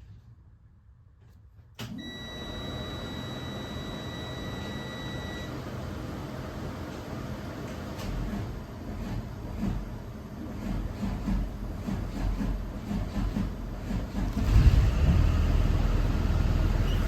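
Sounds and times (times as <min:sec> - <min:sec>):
bus running noise: 0:13.1 - 0:17.0.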